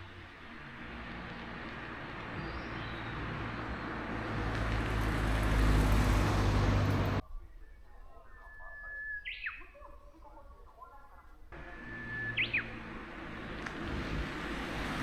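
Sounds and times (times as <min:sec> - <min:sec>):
vehicle engine and road noise: 0:00.0 - 0:07.2, 0:11.6 - 0:15.0
birds calling: 0:00.0 - 0:10.4, 0:11.6 - 0:15.0.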